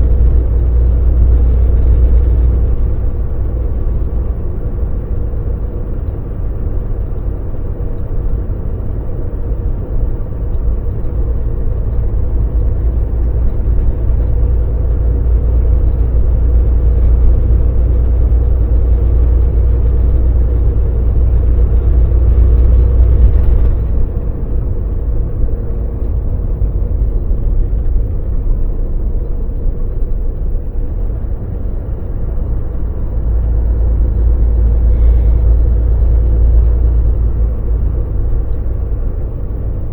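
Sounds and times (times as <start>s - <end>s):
road rumble: 0.0s - 39.9s
truck diesel engine drone: 0.0s - 39.9s.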